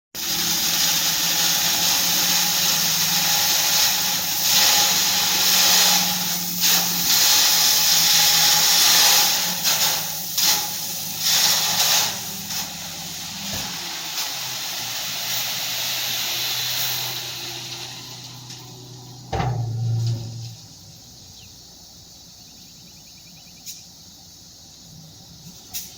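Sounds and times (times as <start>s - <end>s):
material pouring from truck bed: 0.2s - 21.0s
truck engine running: 12.3s - 22.6s.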